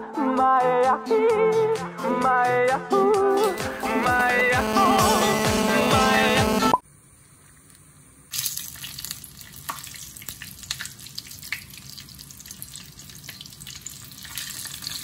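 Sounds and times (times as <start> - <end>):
chicken frying in hot oil: 7.3 - 15.0.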